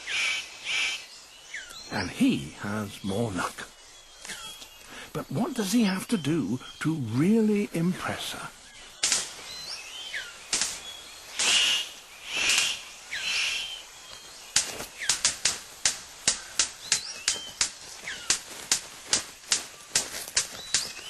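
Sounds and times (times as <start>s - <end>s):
small bird chirps: 0.0s - 15.6s, 16.2s - 21.0s
harsh bird calls: 0.0s - 21.0s
sharp clicks and snaps: 14.5s - 20.9s.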